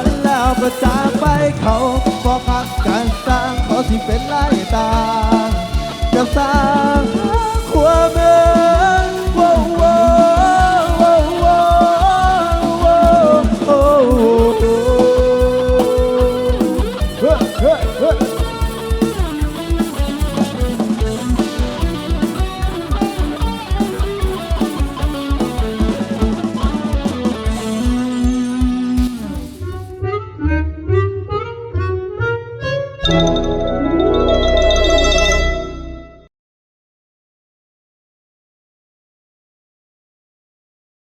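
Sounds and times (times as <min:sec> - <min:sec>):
fast drum beat: 0:00.0 - 0:29.9
band music over loudspeakers: 0:00.0 - 0:30.1
melodic lead line: 0:00.0 - 0:31.9, 0:33.0 - 0:36.3.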